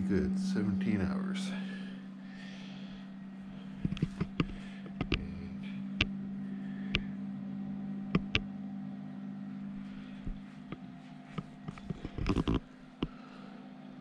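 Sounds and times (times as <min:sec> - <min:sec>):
compressor fridge hum: 0:00.0 - 0:14.0
sharp clicks and taps: 0:03.8 - 0:05.3, 0:08.1 - 0:08.5.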